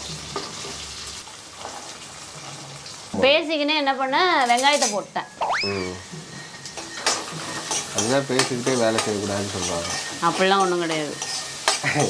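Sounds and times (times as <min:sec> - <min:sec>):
onions sizzling in oil: 0:00.0 - 0:12.0
short squeaky sounds: 0:05.4 - 0:06.1.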